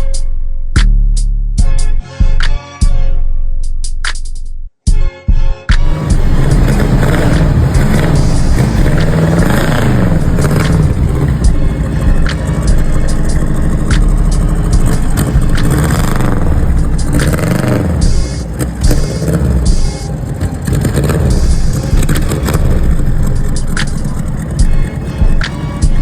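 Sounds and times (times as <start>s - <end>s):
car engine revving: 5.7s - 26.0s.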